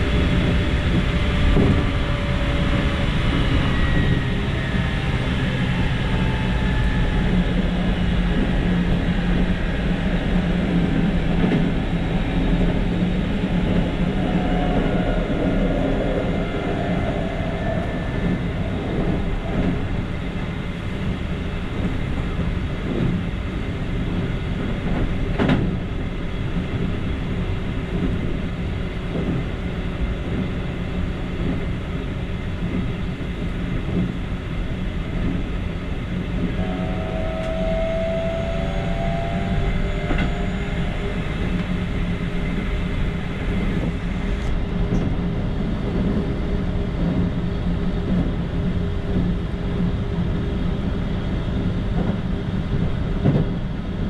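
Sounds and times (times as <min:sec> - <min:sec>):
train wheels rumbling on rail: 0:00.0 - 0:54.0
brief high whine: 0:13.0 - 0:21.5, 0:36.5 - 0:43.0.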